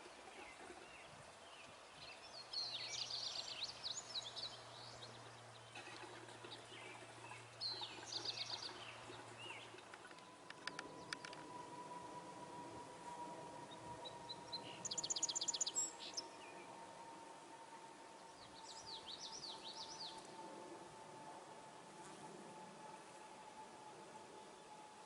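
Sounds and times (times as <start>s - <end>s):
songbirds singing: 0.0s - 12.0s, 13.4s - 17.1s, 18.1s - 20.4s
faint low hum: 0.0s - 25.0s
faint outdoor background noise: 0.0s - 25.0s.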